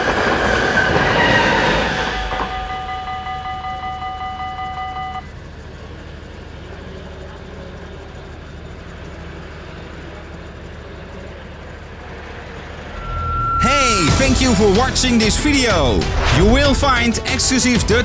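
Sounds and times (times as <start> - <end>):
low hum of street traffic: 0.0 - 14.9
level-crossing warning bell: 2.2 - 5.5, 12.9 - 18.0.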